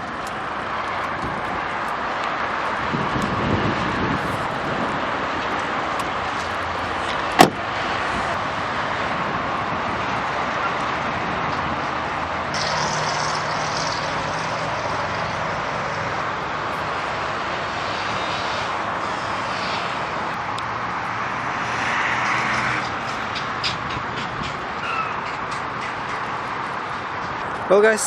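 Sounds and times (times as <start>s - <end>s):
vehicle hiss: 17.6s - 20.4s.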